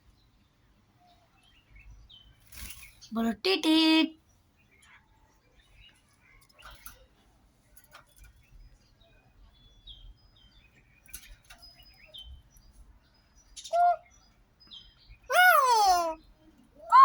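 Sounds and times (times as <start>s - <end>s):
myna loud call: 15.3s - 16.2s, 16.8s - 17.0s.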